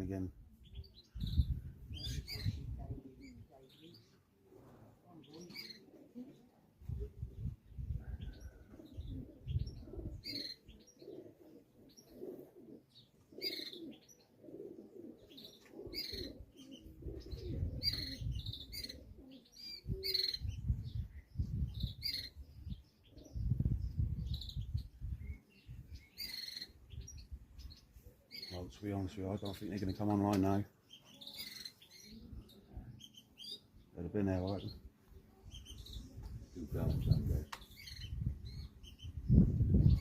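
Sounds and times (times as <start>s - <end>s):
small birds chirping: 0.0s - 40.0s
wind gusts on microphone: 0.7s - 3.1s, 6.8s - 10.3s, 17.0s - 19.2s, 19.8s - 26.1s, 35.5s - 40.0s.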